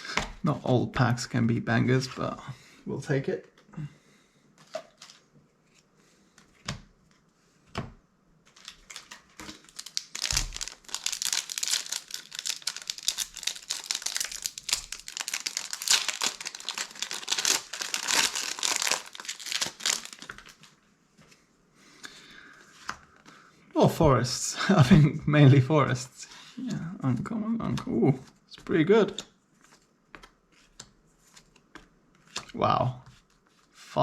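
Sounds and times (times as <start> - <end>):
foil wrapper tearing and crinkling: 8.5 - 20.7.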